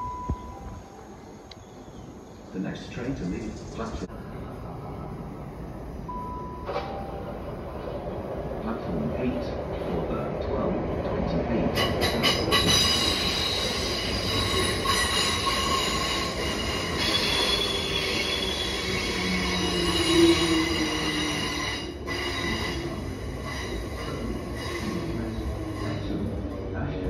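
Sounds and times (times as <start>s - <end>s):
train rumble: 0.0s - 27.0s
train wheels and brakes squealing: 11.8s - 26.6s.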